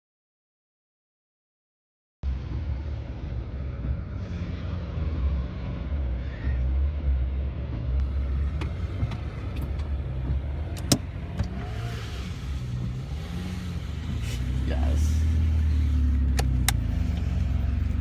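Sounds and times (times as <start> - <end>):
car interior rumble: 2.3 - 18.0
sharp clicks: 16.2 - 17.2.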